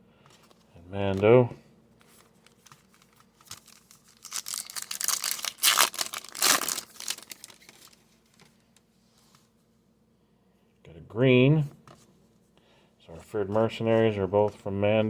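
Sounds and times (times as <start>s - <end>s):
foil wrapper tearing and crinkling: 2.8s - 8.0s.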